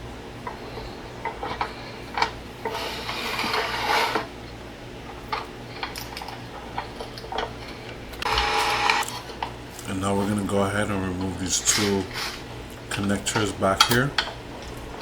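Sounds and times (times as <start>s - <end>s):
scraping and rustling: 0.4s - 4.4s, 5.1s - 15.0s.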